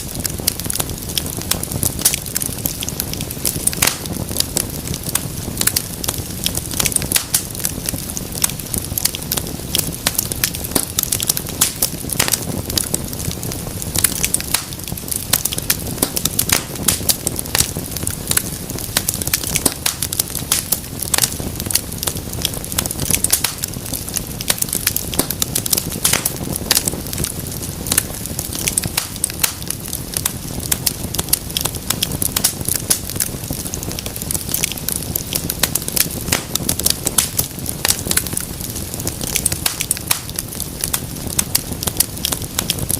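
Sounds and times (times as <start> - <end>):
low rumble of flames: 0.0 - 42.9
wood fire crackling and popping: 0.0 - 42.9.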